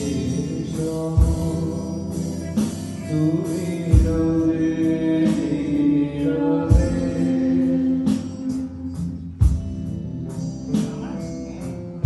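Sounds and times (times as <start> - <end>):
person singing: 0.0 - 9.5
band playing slow song: 0.0 - 12.0
deep drum hits: 9.4 - 10.0.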